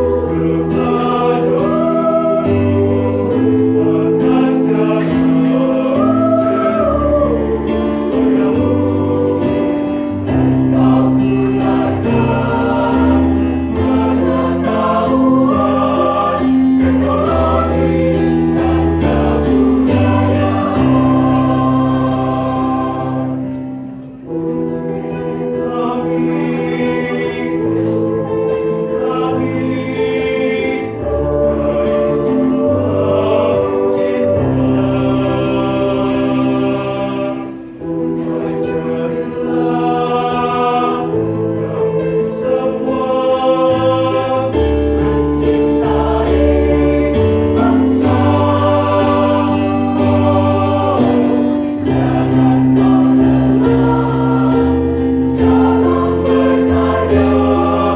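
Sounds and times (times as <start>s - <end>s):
choir singing: 0.0s - 57.9s.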